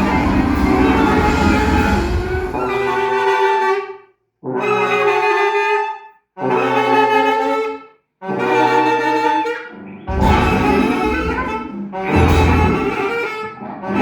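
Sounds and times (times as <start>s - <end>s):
brass and saxophones chords: 0.0s - 3.3s, 10.1s - 14.0s
full orchestra playing: 10.1s - 13.2s.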